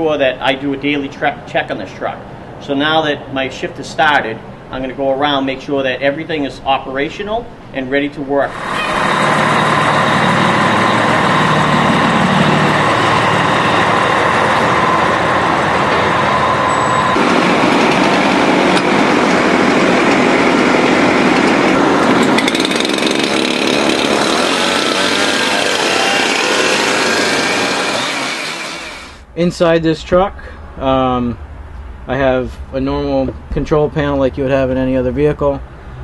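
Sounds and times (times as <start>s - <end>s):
fire engine running: 8.4s - 29.3s.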